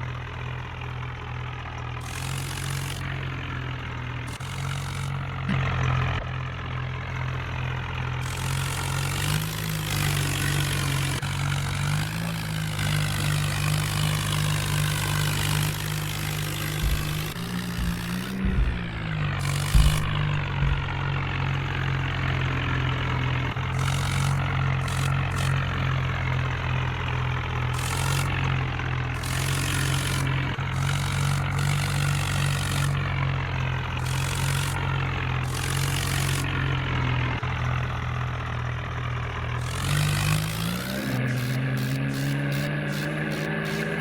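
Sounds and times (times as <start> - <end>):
diesel engine running: 0.0 - 44.0
soil being loaded: 4.3 - 6.0, 8.2 - 21.6, 23.7 - 25.9, 27.8 - 28.6, 29.2 - 33.4, 34.0 - 36.8, 39.6 - 44.0.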